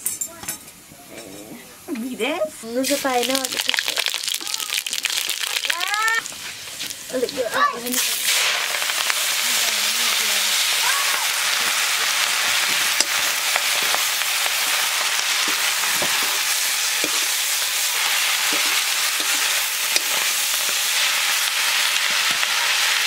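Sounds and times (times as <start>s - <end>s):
greens sizzling in a wok: 1.8s - 23.0s
ladle stirring in a wok: 6.2s - 23.0s.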